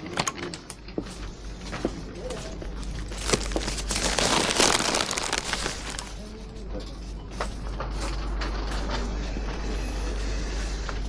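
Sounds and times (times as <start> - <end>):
rustling crinkling noise: 1.1 - 6.6.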